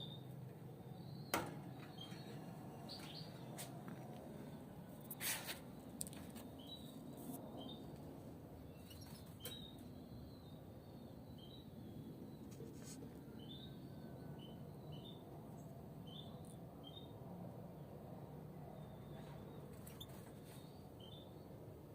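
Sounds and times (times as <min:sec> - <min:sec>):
goldfinches chirping: 0:08.6 - 0:17.2.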